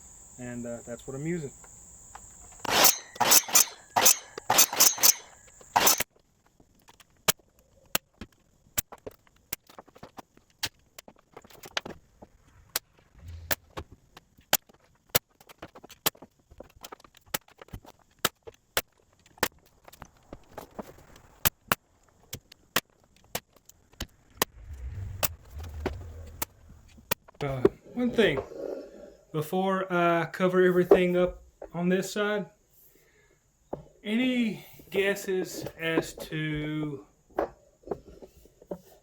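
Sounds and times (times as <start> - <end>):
saw cutting trim: 2.6 - 6.0.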